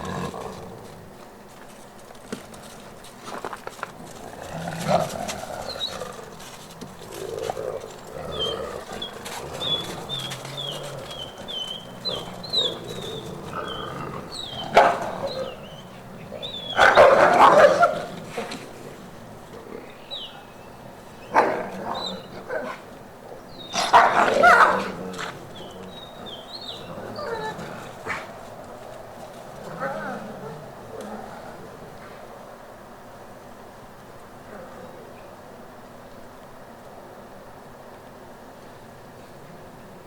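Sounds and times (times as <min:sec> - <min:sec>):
wolves barking harshly: 0:04.1 - 0:19.5, 0:21.2 - 0:22.9, 0:23.6 - 0:28.5.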